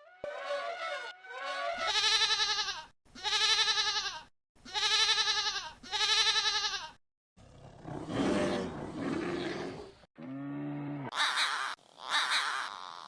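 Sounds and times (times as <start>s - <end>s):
goat bleating: 0.9s - 7.0s.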